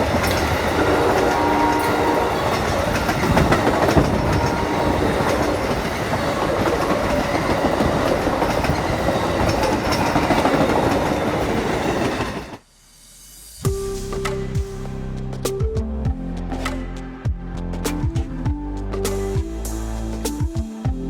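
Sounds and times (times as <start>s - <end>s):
train rolling past: 0.0s - 12.6s.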